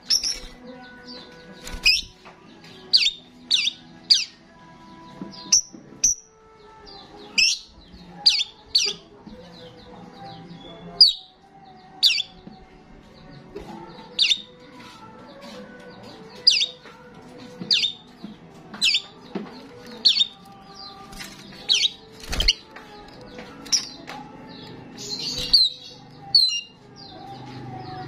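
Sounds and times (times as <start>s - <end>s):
starling chirping: 0.0s - 2.2s, 2.8s - 4.4s, 7.0s - 9.1s, 12.0s - 12.4s, 14.1s - 14.6s, 16.2s - 16.8s, 17.6s - 18.2s, 18.8s - 22.7s, 23.7s - 28.0s.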